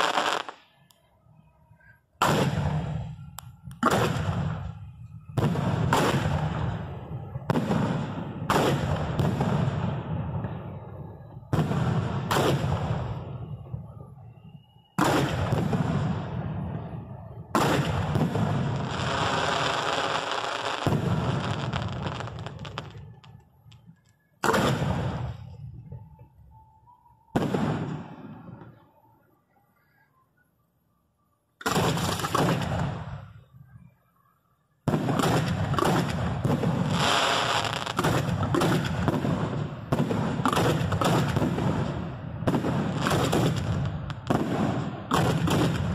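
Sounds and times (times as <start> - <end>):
firework booms with echo: 2.2 - 13.8, 15.0 - 23.3, 24.4 - 26.2, 27.3 - 28.8, 31.6 - 33.4, 34.8 - 45.9.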